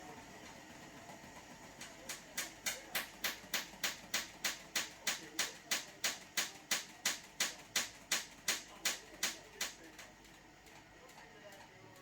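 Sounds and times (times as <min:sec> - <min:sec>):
washing machine running: 0:00.0 - 0:12.0.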